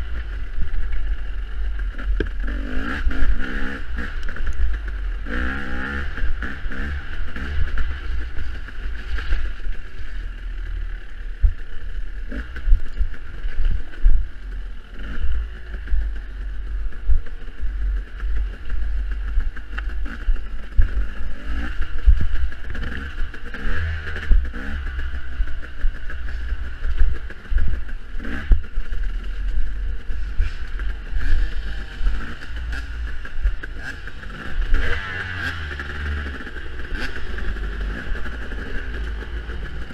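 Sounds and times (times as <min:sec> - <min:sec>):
dirt bike engine revving: 0:00.0 - 0:39.9
wind rumbling on microphone: 0:00.0 - 0:39.9.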